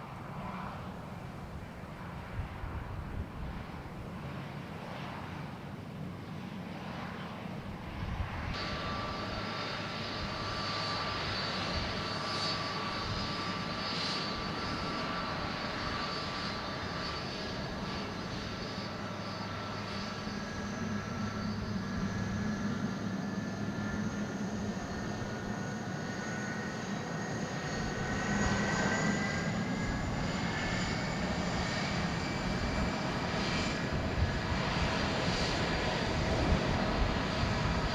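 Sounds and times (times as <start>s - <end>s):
jet engines roaring: 0.0s - 37.9s
high multi-tone whine: 8.6s - 35.4s.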